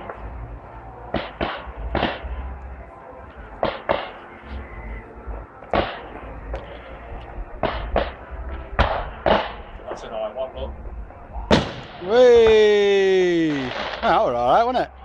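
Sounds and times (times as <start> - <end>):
fireworks bangs: 1.1 - 2.5, 5.7 - 6.3, 7.6 - 9.7, 11.4 - 14.4.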